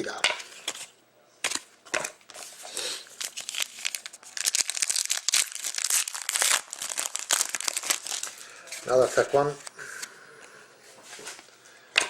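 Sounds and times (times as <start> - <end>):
foil wrapper crinkling: 2.3 - 9.7.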